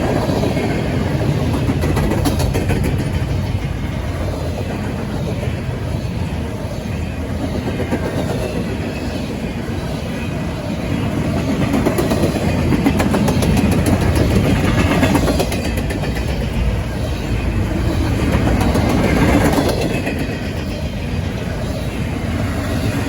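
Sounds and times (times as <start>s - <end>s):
wheels clicking over rail joints: 0.0s - 5.6s, 10.8s - 23.0s
train rumbling past: 0.0s - 23.0s.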